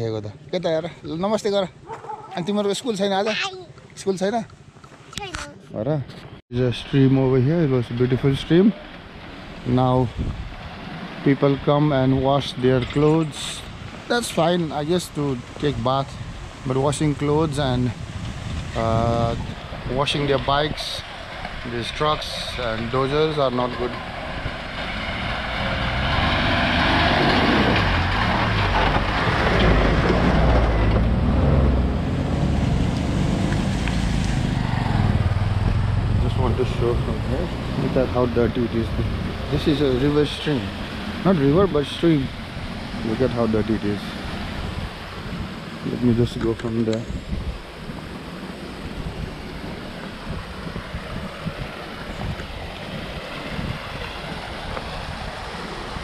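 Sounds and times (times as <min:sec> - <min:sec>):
vehicle engine rumbling: 0:00.0 - 0:56.0
wind buffeting microphone: 0:09.6 - 0:10.8, 0:12.0 - 0:25.0, 0:25.6 - 0:56.0
stream water rushing: 0:36.8 - 0:56.0.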